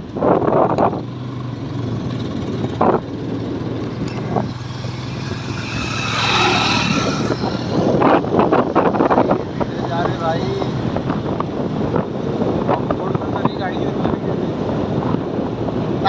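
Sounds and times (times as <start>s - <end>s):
motorcycle engine running: 0.0s - 15.9s
wind and road noise: 0.0s - 16.0s.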